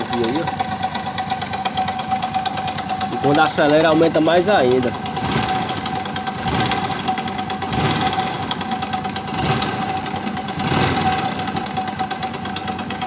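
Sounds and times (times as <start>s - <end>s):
motorcycle engine revving with rattle: 0.0s - 13.0s.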